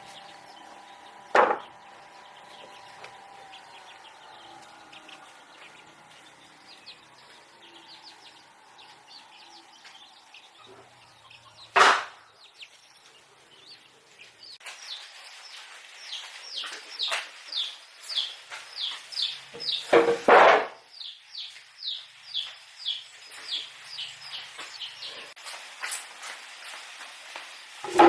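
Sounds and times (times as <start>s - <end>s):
small birds chirping: 0.0s - 28.0s
loud sharp knock: 1.3s - 1.7s, 11.8s - 12.2s.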